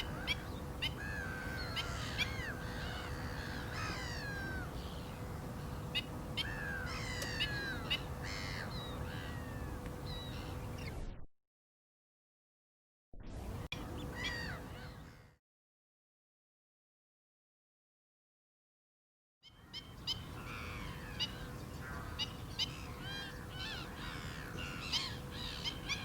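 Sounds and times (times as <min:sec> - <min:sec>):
birds yelping calls: 0:00.0 - 0:11.0, 0:13.8 - 0:15.2, 0:19.5 - 0:26.0
drawn-out falling bird calls: 0:06.0 - 0:09.8.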